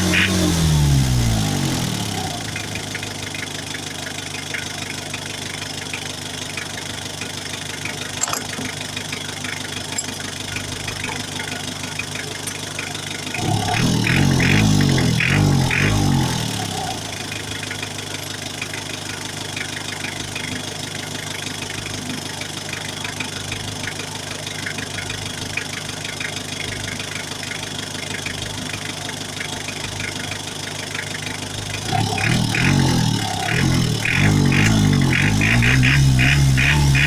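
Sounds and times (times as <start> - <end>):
engine revving: 0.0 - 3.0, 13.3 - 17.5, 31.8 - 37.0
diesel engine idling: 0.0 - 37.0.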